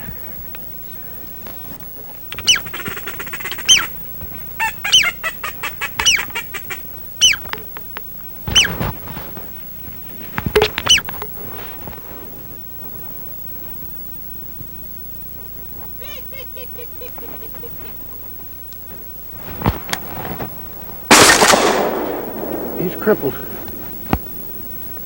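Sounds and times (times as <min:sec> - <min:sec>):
duck quacking: 0:02.3 - 0:04.0, 0:04.6 - 0:07.7, 0:08.5 - 0:08.8, 0:10.7 - 0:11.1.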